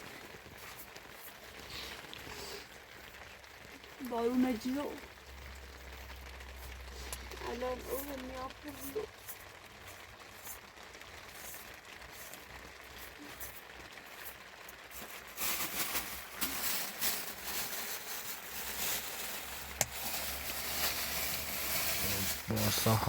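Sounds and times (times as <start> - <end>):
rain pattering: 0.0 - 23.0.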